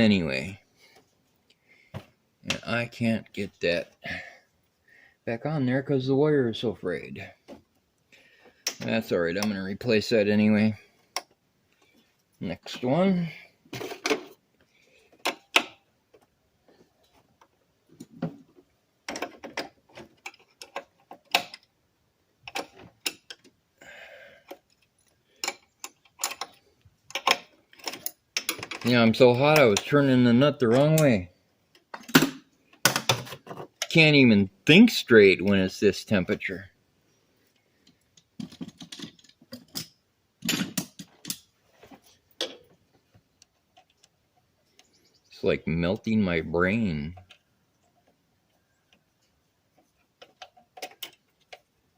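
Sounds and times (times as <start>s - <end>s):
wrench clicks and clanks: 25.4s - 28.9s.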